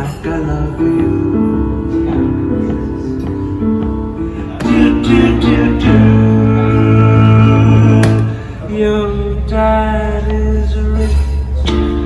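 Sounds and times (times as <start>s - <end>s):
strummed chords: 0.0s - 8.4s
live instrumental music: 0.0s - 8.7s, 10.4s - 12.0s.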